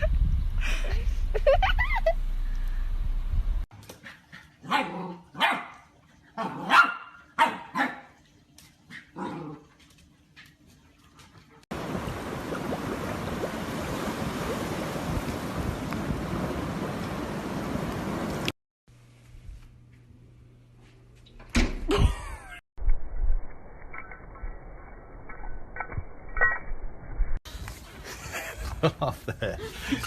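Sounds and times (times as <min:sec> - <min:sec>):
dog barking and yelping: 0:06.4 - 0:08.1.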